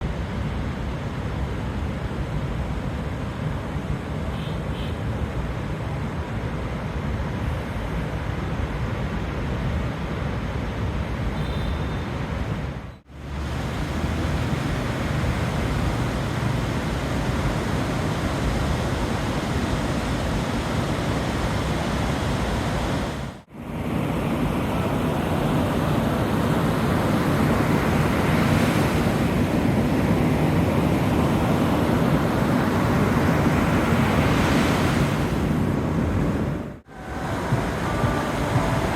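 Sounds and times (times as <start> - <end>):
surf washing onto beach: 13.1 - 38.9
wind buffeting microphone: 13.3 - 38.9.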